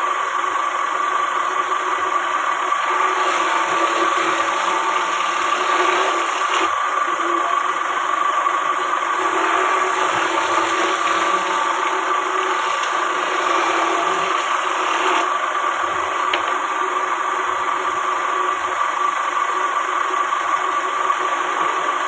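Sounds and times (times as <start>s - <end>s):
motor humming with whine: 0.0s - 22.0s.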